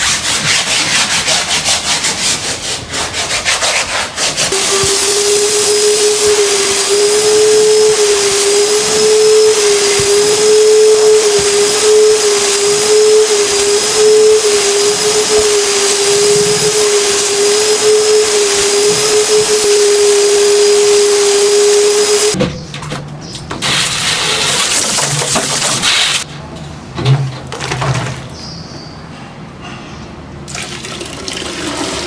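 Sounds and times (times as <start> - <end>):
vacuum cleaner whining: 4.4 - 22.4, 23.6 - 26.2.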